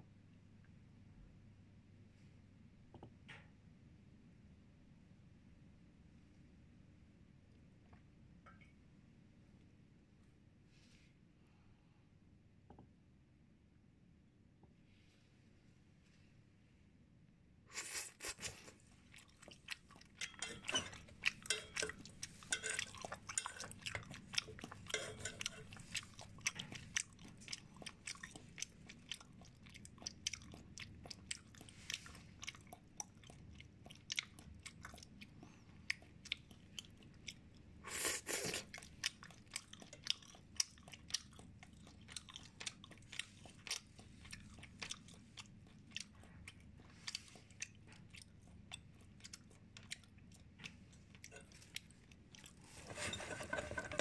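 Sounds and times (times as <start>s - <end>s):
wet chewing and crunching: 17.8s - 54.0s.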